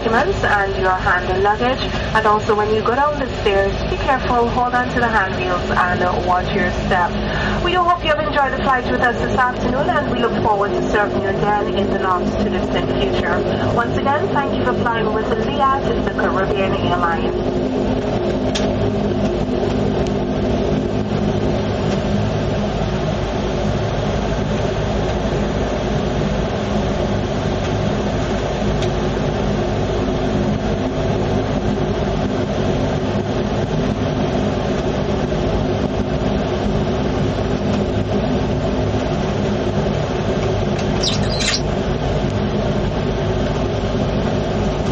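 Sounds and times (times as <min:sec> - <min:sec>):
airliner engines droning: 0:00.0 - 0:44.9.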